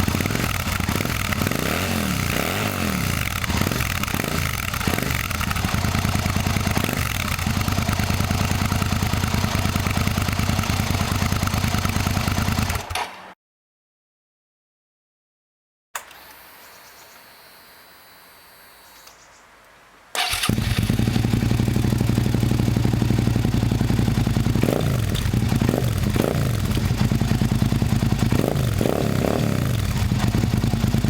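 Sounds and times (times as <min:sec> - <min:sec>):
motorcycle engine starting and idling: 0:00.0 - 0:13.4, 0:20.2 - 0:31.0.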